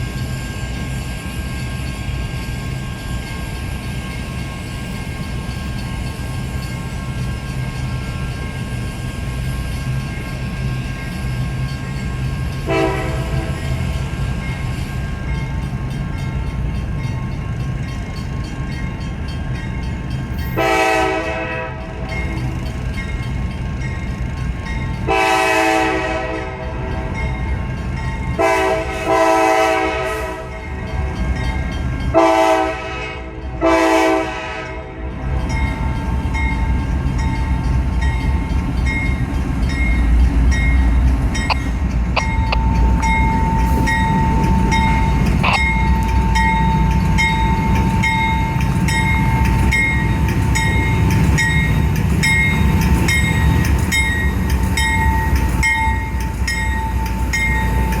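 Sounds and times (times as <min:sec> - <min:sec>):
train passing rumble: 0:00.0 - 0:58.0
locomotive horn: 0:12.7 - 0:13.8, 0:20.6 - 0:22.0, 0:25.1 - 0:27.0, 0:28.4 - 0:30.6, 0:32.1 - 0:35.3.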